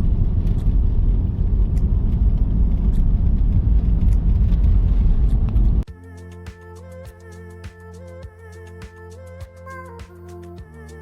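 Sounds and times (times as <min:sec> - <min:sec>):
car road noise rumble: 0:00.0 - 0:05.9.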